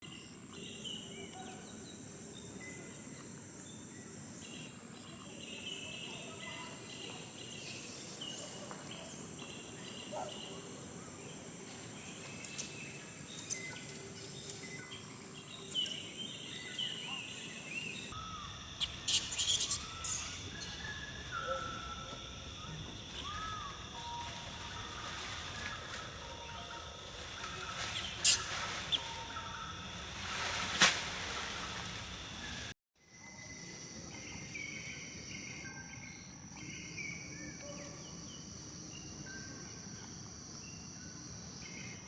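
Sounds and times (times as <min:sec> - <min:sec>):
high insect drone: 0:00.0 - 0:18.8, 0:33.0 - 0:42.0.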